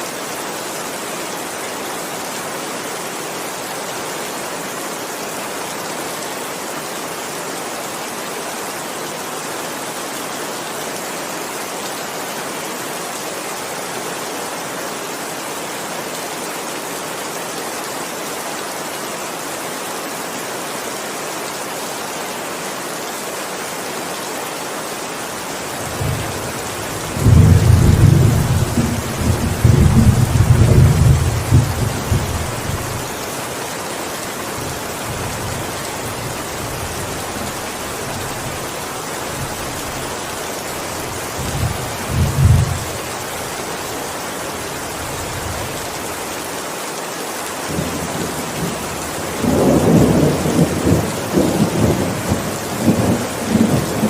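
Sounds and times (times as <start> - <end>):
heavy rain falling: 0.0 - 54.0
thunder rumbling: 25.9 - 32.8.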